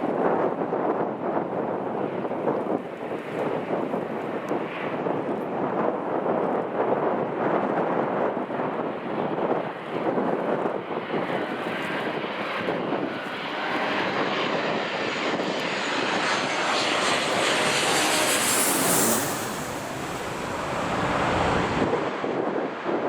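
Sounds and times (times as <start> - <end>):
gusty wind on microphone: 0.0 - 23.0
airliner engines whining: 10.8 - 23.0.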